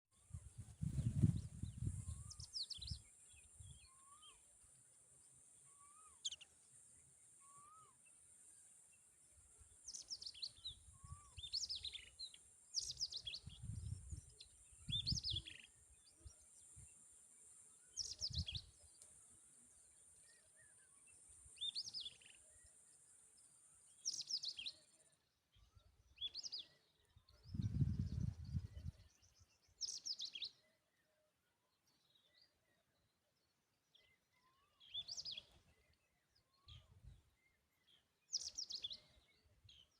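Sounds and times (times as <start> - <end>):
small bird chirping: 0.2 - 4.5, 5.6 - 6.6, 9.6 - 16.4, 23.4 - 25.0, 25.6 - 30.7, 33.9 - 39.9.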